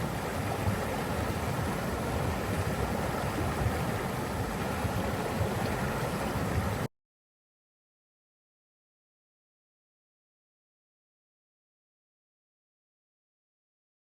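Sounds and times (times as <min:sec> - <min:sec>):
water rushing: 0:00.0 - 0:06.9.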